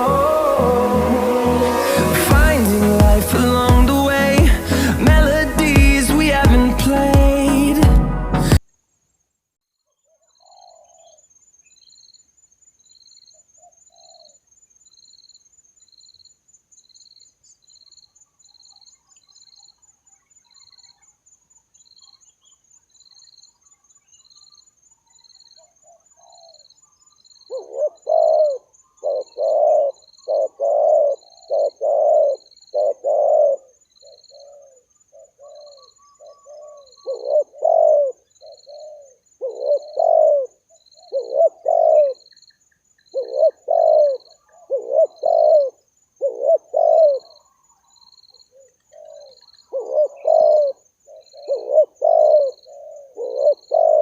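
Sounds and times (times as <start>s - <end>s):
high-pitched insect chirping: 0.0s - 7.7s
doves cooing: 27.5s - 42.3s, 43.1s - 54.0s.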